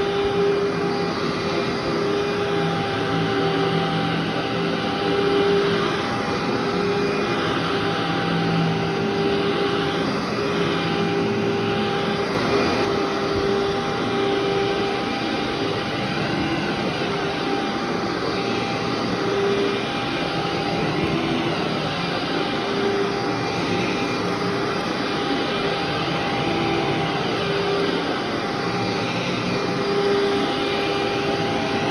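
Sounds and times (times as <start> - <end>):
vacuum cleaner on carpet: 0.0 - 31.9.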